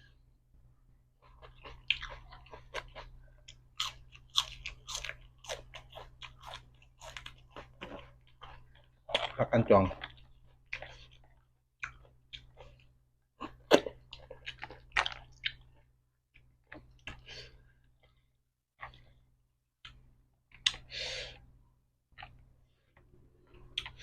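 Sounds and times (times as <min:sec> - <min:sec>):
chewing with wet mouth smacks: 0:01.2 - 0:09.4.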